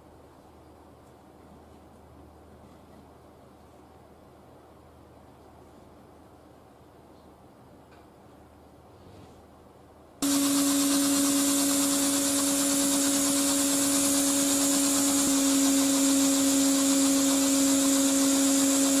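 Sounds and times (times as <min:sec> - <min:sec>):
motor hum with rushing hiss: 0:10.2 - 0:19.0.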